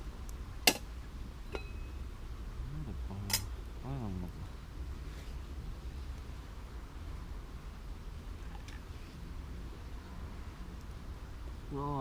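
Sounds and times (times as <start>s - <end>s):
steady low rumble: 0.0s - 12.0s
faint metallic ring: 1.5s - 2.1s
low hum of a voice: 2.6s - 4.6s, 11.7s - 12.0s.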